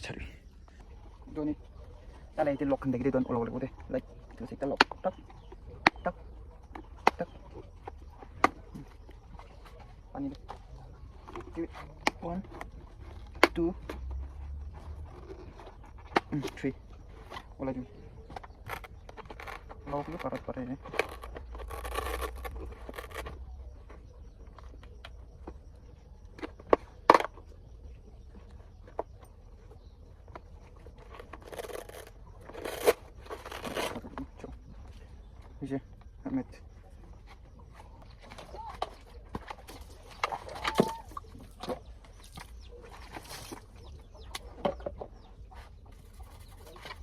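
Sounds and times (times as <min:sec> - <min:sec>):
clucking bird calls: 0:00.0 - 0:14.2, 0:33.5 - 0:47.0.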